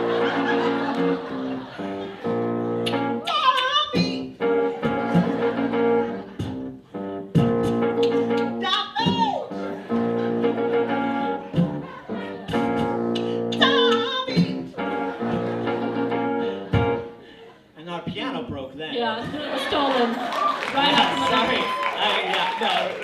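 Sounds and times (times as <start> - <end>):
electronic keyboard chords: 0.0 - 3.3, 4.0 - 17.2
person singing sliding notes: 7.4 - 9.4.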